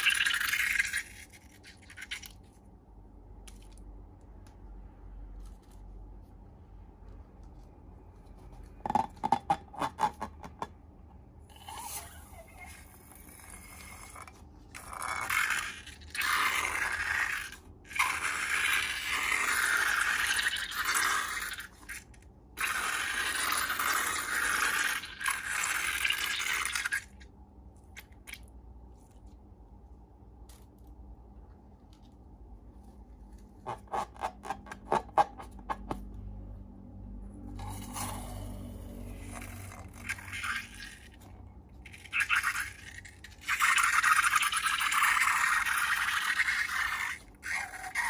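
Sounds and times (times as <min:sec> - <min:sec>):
scraping and rustling of slime: 0:00.7 - 0:09.2, 0:27.0 - 0:35.9.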